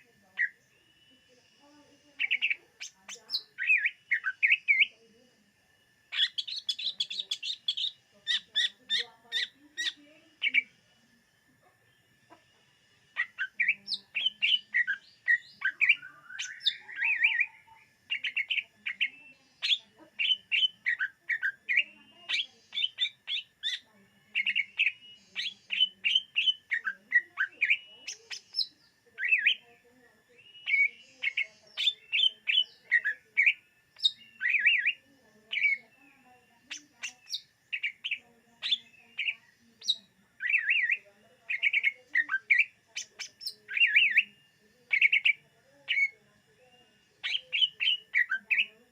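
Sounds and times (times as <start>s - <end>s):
bird singing chirps and whistles: 2.2s - 4.9s, 6.1s - 10.7s, 13.2s - 29.6s, 30.3s - 48.8s.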